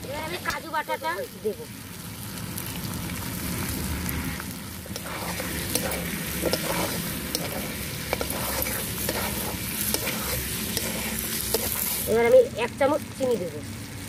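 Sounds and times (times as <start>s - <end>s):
chicken sizzling in wok: 0.0s - 14.0s
metal spatula scraping wok: 4.8s - 12.4s.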